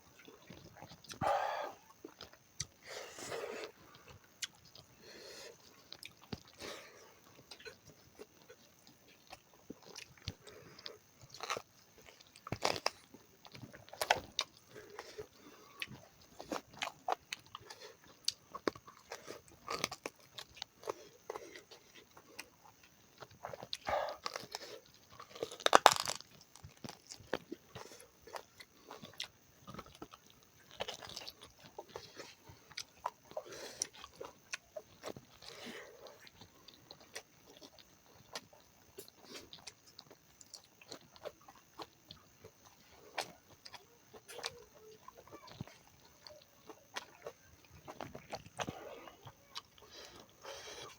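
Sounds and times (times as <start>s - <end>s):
person chewing food: 0.1s - 50.9s
wet clicks and crunches: 25.4s - 27.4s.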